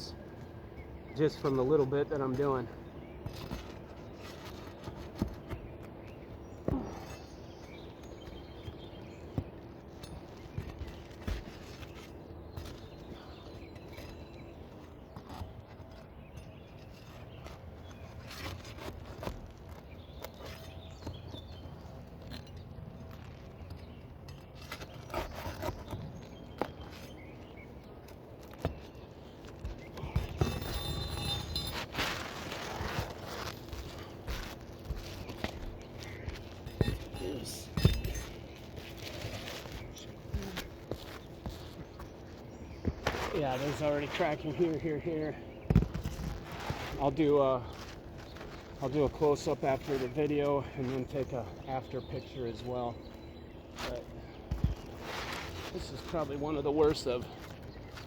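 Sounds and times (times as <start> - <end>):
tool tapping and scraping shingles: 1.1 - 58.0
shingles cracking: 24.2 - 41.8.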